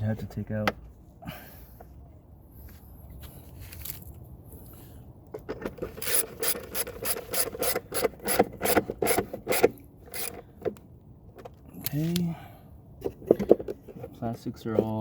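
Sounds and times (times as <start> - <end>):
ratchet wrench clicking: 6.0 - 10.4.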